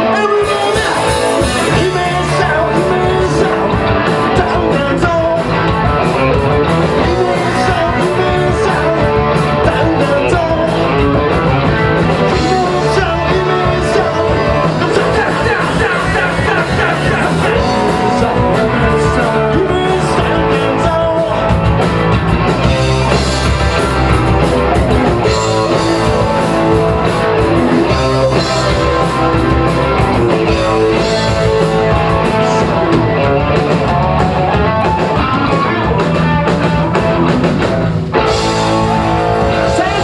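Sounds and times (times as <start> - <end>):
live rock band playing: 0.0 - 40.0.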